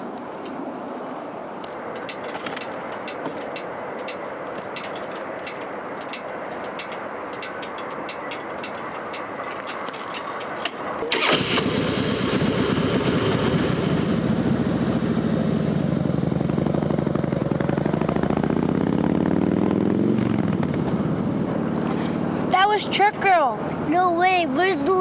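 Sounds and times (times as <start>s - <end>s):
vehicle engine running: 11.1s - 25.0s.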